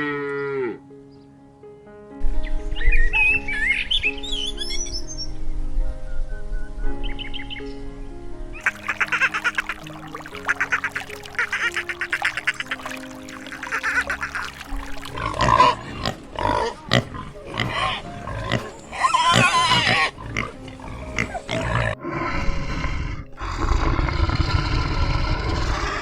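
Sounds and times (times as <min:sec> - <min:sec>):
pig squealing: 0:08.6 - 0:26.0
pigs grunting: 0:08.6 - 0:26.0.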